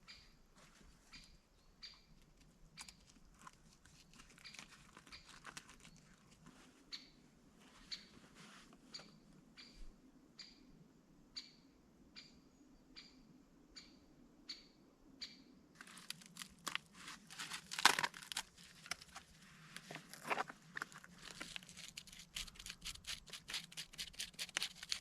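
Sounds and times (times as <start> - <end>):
dry material crunching and crackling: 2.2 - 6.7, 15.8 - 25.0.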